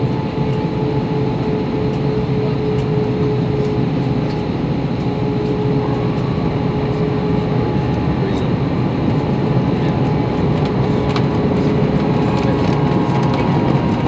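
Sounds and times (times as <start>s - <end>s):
airplane cabin engine rumble: 0.0s - 14.0s.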